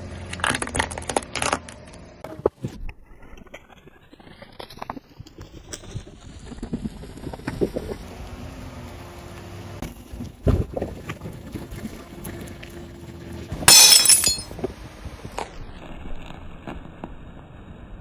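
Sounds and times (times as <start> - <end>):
glass shattering and crunching: 13.7 - 14.5.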